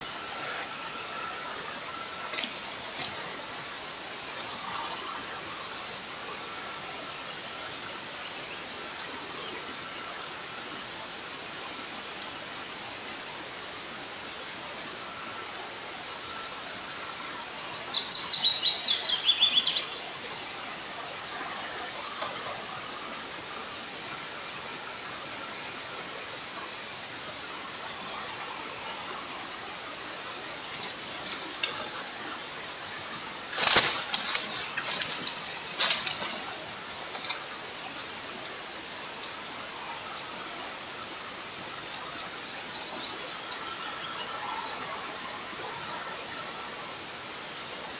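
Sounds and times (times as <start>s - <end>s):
wind hiss: 0.0s - 1.7s.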